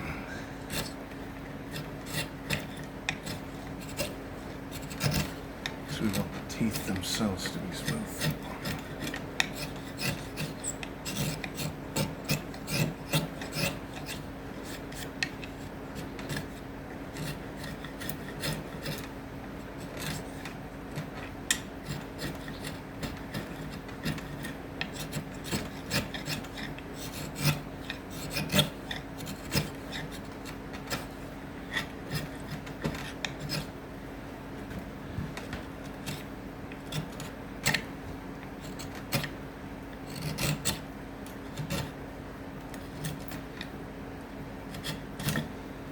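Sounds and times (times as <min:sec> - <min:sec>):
steady low hum: 0:00.0 - 0:45.9
abrasive scraping wood: 0:01.6 - 0:19.1.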